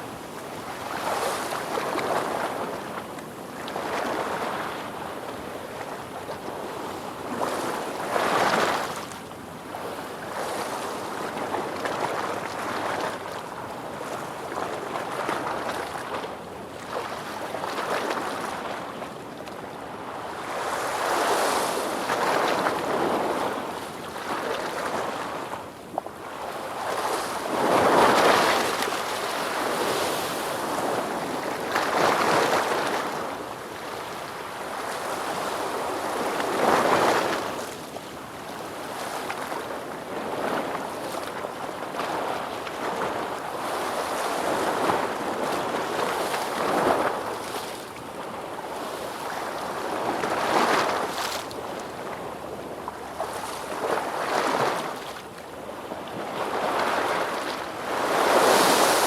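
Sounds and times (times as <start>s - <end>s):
ocean waves breaking: 56.3s - 59.0s.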